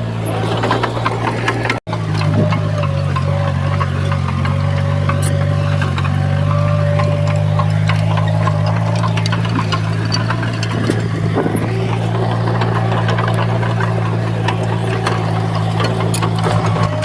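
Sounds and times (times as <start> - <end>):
diesel engine running: 0.0 - 17.0
light clanks and clicks: 0.1 - 17.0.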